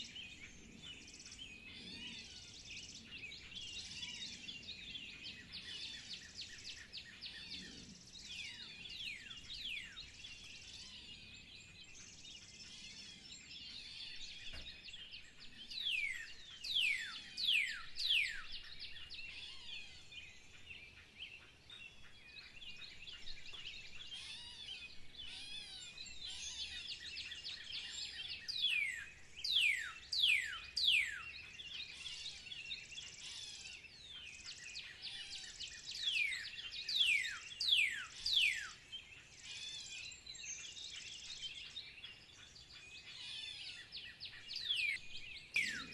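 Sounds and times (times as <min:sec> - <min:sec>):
birds chirping in chorus: 0:00.0 - 0:45.9
falling whistled bird notes: 0:44.8 - 0:45.9.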